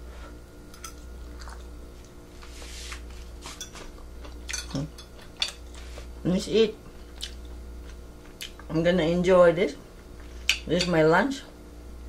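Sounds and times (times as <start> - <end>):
person chewing food: 0.8 - 6.1, 7.1 - 8.7.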